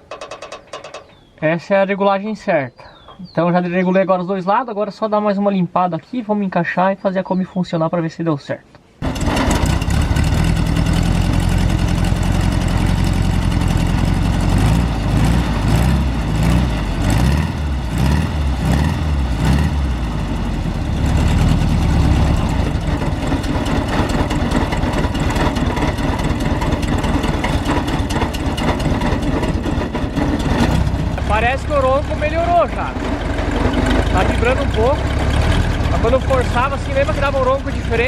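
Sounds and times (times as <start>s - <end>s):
car engine revving and running: 9.0s - 38.0s.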